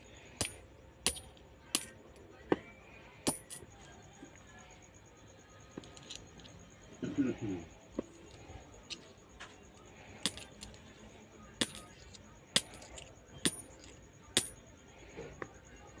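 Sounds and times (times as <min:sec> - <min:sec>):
coins dropping and clinking: 0:00.4 - 0:02.0, 0:03.3 - 0:03.7, 0:10.1 - 0:10.8, 0:11.6 - 0:14.6.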